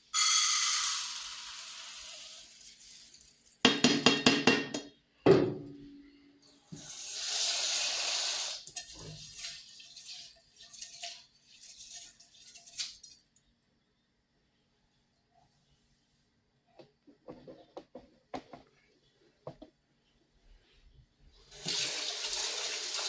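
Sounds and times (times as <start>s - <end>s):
tap water running: 0.2s - 3.2s, 6.7s - 13.2s, 21.5s - 23.0s.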